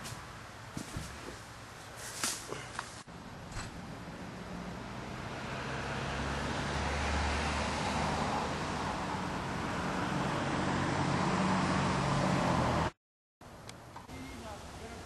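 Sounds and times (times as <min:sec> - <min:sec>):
road noise: 0:00.0 - 0:15.0
vehicle engine hum: 0:02.5 - 0:13.0.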